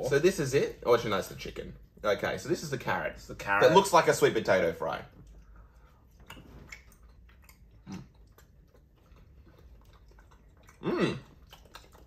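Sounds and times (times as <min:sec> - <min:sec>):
faint chewing: 0:04.8 - 0:12.0.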